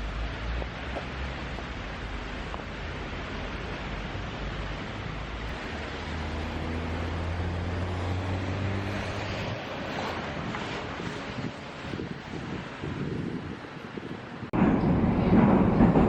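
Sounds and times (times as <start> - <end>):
low engine hum: 0.0 - 12.1
wind on microphone: 0.7 - 16.0.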